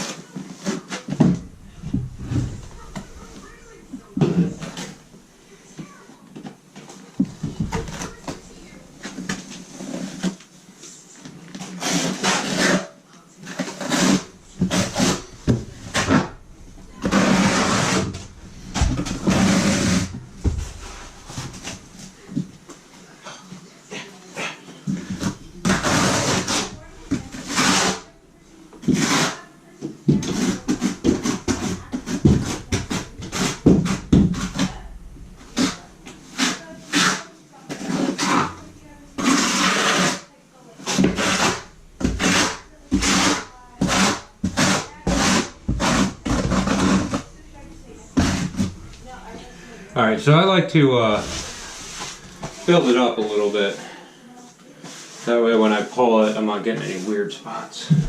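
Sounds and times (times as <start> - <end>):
trowel scraping mortar: 0.6 - 5.1, 7.2 - 10.4, 11.6 - 22.5, 24.9 - 28.1, 28.8 - 29.4, 30.1 - 49.8, 51.1 - 52.7.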